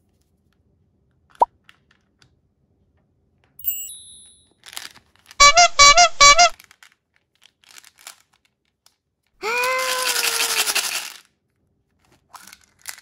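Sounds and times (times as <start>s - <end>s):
bright high chime: 3.6s - 4.4s
toy-like pitched notes: 5.4s - 6.5s.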